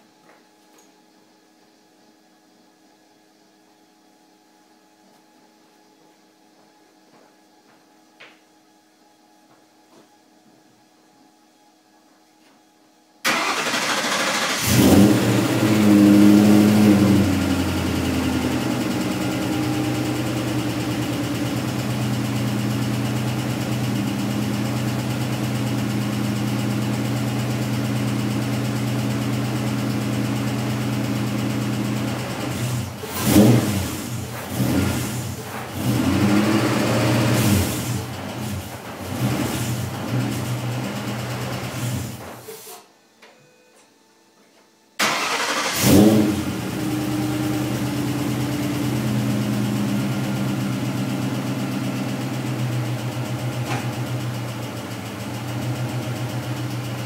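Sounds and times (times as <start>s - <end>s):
car engine starting and idling: 13.2s - 42.5s, 45.0s - 57.0s
engine revving: 13.3s - 20.8s, 32.4s - 42.2s, 45.0s - 50.2s.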